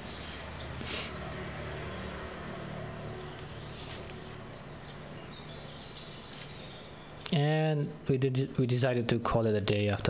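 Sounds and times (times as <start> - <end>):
faint insect drone: 0.6 - 7.2.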